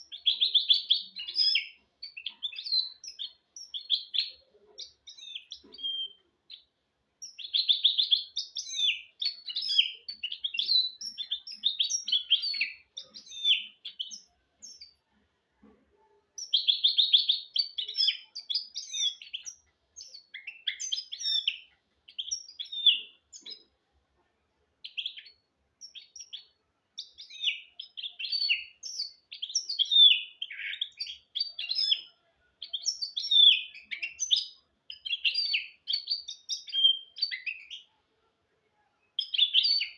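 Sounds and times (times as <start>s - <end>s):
finch singing twitters and trills: 0.0s - 23.8s, 24.8s - 38.1s, 39.1s - 39.9s.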